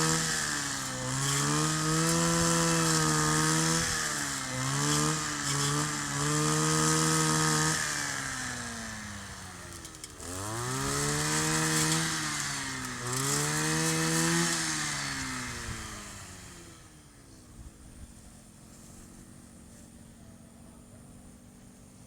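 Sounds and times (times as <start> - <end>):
brush cutter engine revving: 0.0 - 17.1.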